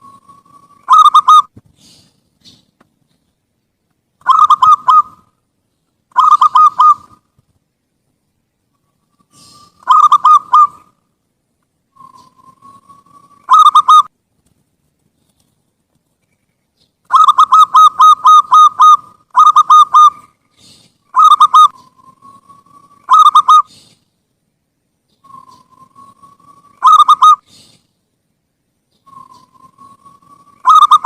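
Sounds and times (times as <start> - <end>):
dove cooing: 0.0 - 2.6, 4.2 - 5.3, 6.1 - 7.2, 9.3 - 10.9, 12.0 - 14.1, 17.1 - 24.0, 25.2 - 27.8, 29.1 - 31.0.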